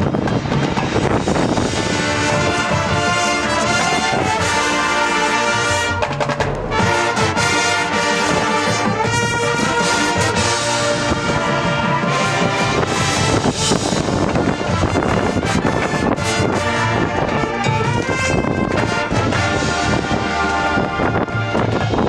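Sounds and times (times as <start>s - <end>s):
marching band playing: 0.0s - 22.0s
low drum hit: 5.7s - 9.0s.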